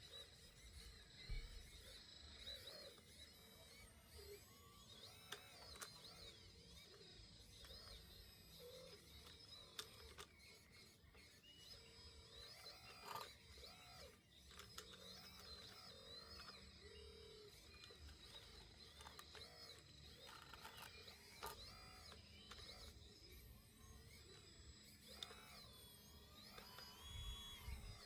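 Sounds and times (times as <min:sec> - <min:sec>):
faint birdsong chirps: 0:00.0 - 0:28.0.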